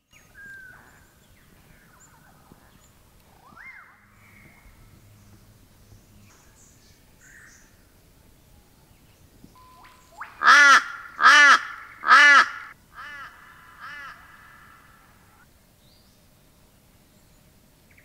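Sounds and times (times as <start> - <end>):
crow cawing: 10.4 - 15.4.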